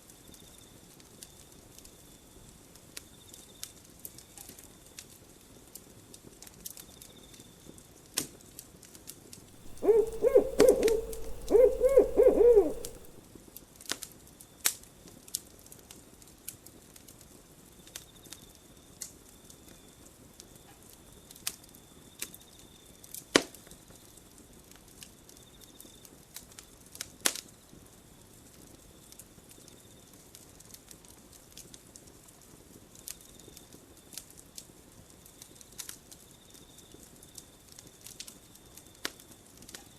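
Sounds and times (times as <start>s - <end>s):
owl hooting: 9.6s - 13.2s.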